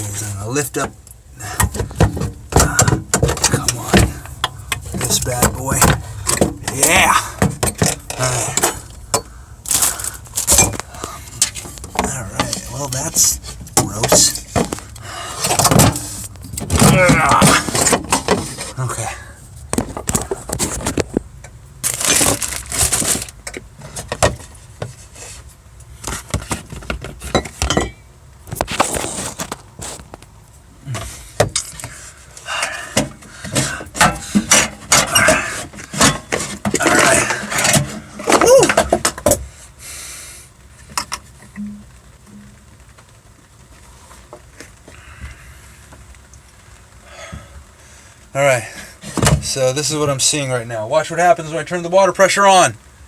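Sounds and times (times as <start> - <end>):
tools and parts clinking: 10.4 - 18.8, 26.1 - 28.1, 32.6 - 39.4
hissy rustle: 42.1 - 49.6.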